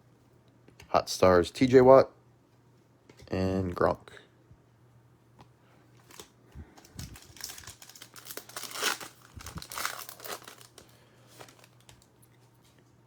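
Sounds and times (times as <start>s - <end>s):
foil wrapper tearing and crinkling: 6.0s - 12.0s.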